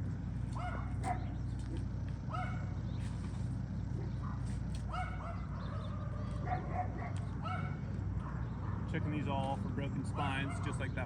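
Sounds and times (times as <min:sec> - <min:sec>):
steady low hum: 0:00.0 - 0:11.0
dog barking: 0:00.6 - 0:01.4, 0:02.3 - 0:02.8, 0:04.0 - 0:09.0, 0:10.2 - 0:10.9.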